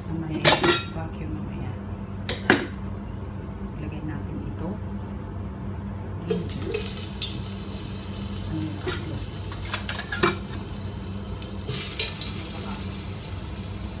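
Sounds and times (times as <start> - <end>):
potatoes sizzling in oil: 6.3 - 14.0.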